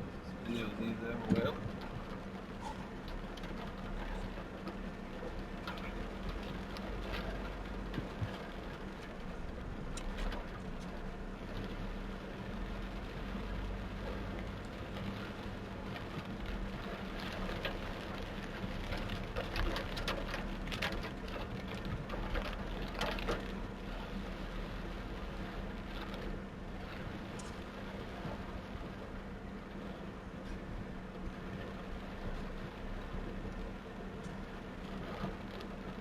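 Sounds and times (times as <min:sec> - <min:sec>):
car engine hum: 0:00.0 - 0:36.0
heavy rain on a car: 0:00.0 - 0:36.0.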